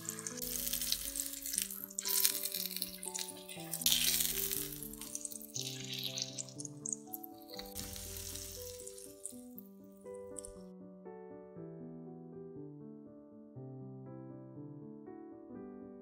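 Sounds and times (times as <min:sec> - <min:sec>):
oil sizzling in a frying pan: 0:00.0 - 0:09.6
background music stepping melody: 0:00.0 - 0:10.7.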